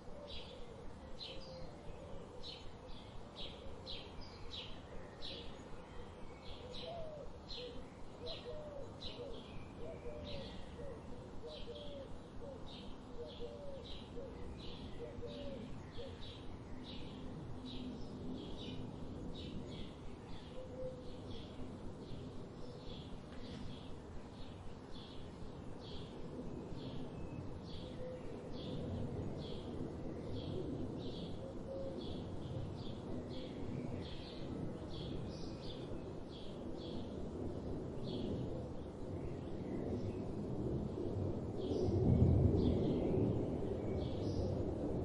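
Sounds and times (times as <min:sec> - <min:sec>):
low wavering bird calls: 0:00.0 - 0:16.5, 0:20.3 - 0:21.6, 0:31.2 - 0:34.4.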